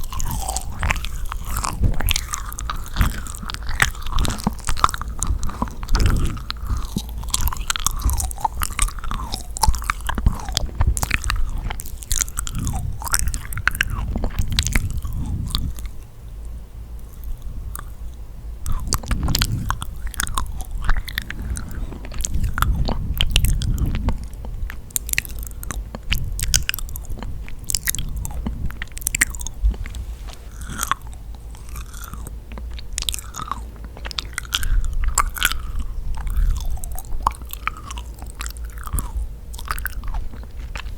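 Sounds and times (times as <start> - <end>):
mouth smacks: 0.0 - 16.0
biting and chewing cookie: 0.0 - 40.9.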